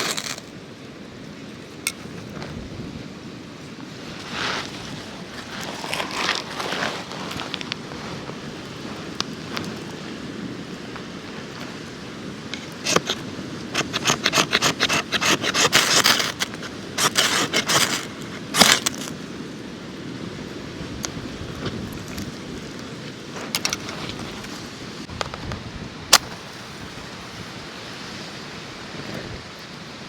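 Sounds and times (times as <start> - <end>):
gear scraping and rustling: 0.0 - 0.5, 4.0 - 10.0, 12.5 - 19.2, 23.4 - 25.4
wind: 0.0 - 30.0
surf: 1.6 - 30.0.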